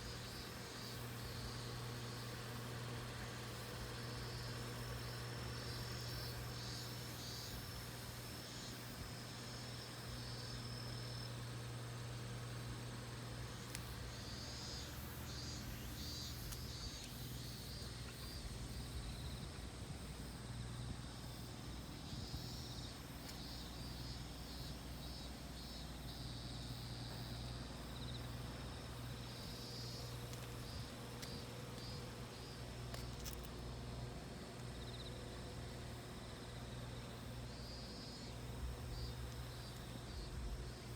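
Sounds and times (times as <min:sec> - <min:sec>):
cicadas singing: 0:00.0 - 0:40.9
steady low hum: 0:00.0 - 0:40.9.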